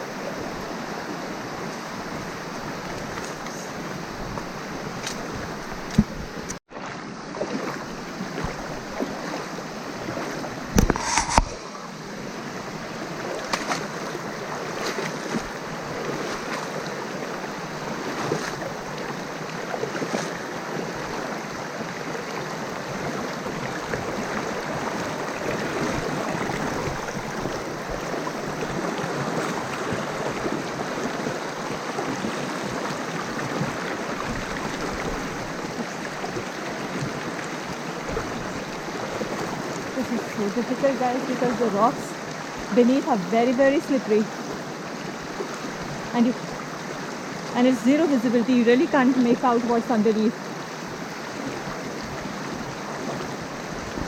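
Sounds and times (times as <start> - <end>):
water rushing over rocks: 0.0 - 54.0.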